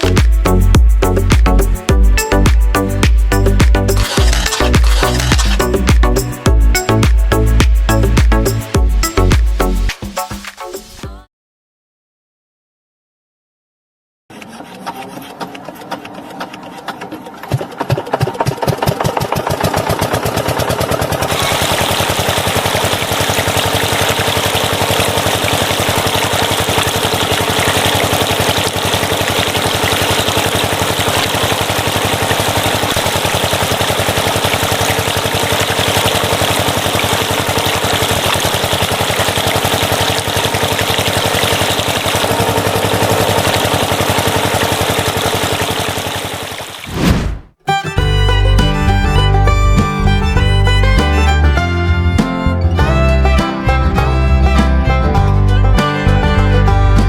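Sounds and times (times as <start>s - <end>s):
diesel engine chugging: 18.7s - 46.5s, 47.7s - 57.0s.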